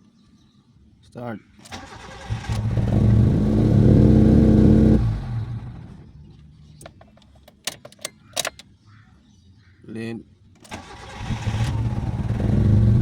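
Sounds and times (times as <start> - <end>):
engine cranking and stalling: 1.6 - 8.6, 10.6 - 13.0.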